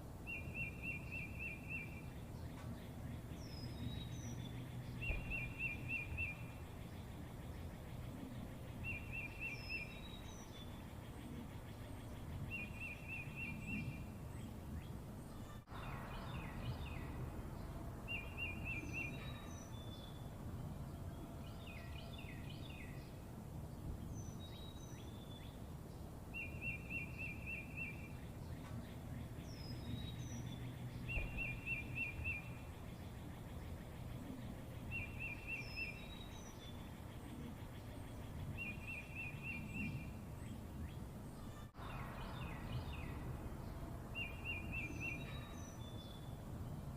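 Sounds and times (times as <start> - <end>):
high bird chirps: 0.3 - 6.6, 26.4 - 33.8
low background rumble: 1.9 - 26.4.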